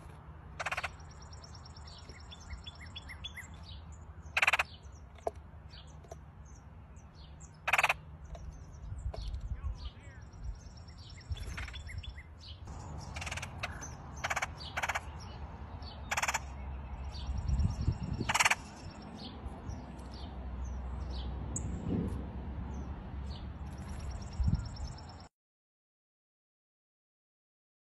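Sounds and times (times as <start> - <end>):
faint songbirds: 0.0 - 21.9, 22.6 - 25.3
harsh raspy bird calls: 0.5 - 5.9, 7.2 - 17.4, 18.0 - 19.3.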